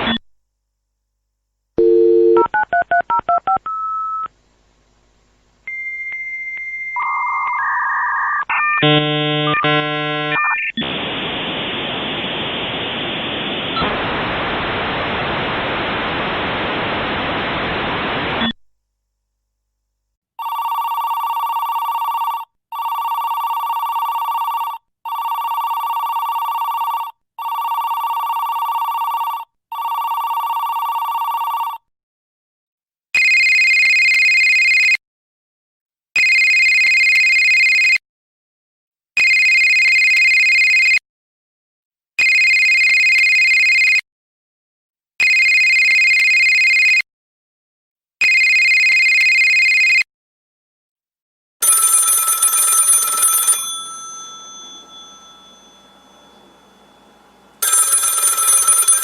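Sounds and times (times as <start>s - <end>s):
telephone ringing electronically: 20.4s - 31.9s, 33.2s - 34.6s, 36.2s - 37.9s, 39.2s - 40.9s, 42.2s - 44.0s, 45.2s - 47.0s, 48.2s - 50.0s, 51.6s - 59.0s
higher-pitched ring: 53.6s - 57.6s.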